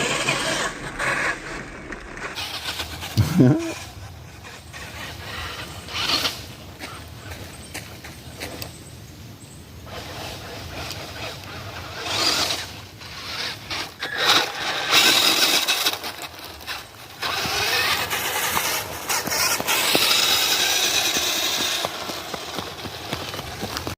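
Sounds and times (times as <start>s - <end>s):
tyre noise over ground: 0.0s - 23.9s
electric motor and gear whine: 10.1s - 23.9s.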